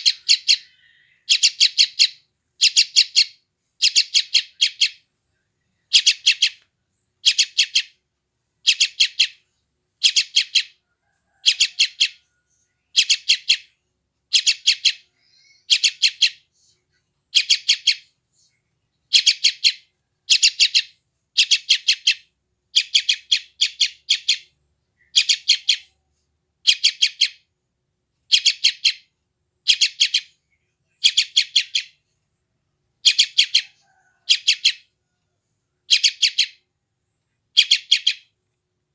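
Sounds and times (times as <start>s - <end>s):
bird chick begging calls: 0.0s - 5.0s, 5.9s - 6.6s, 7.2s - 8.0s, 8.6s - 9.4s, 10.0s - 12.3s, 12.9s - 13.7s, 14.3s - 16.4s, 17.3s - 18.1s, 19.1s - 26.0s, 26.6s - 27.4s, 28.3s - 29.1s, 29.7s - 30.4s, 31.0s - 32.0s, 33.0s - 34.9s, 35.9s - 36.6s, 37.6s - 38.3s.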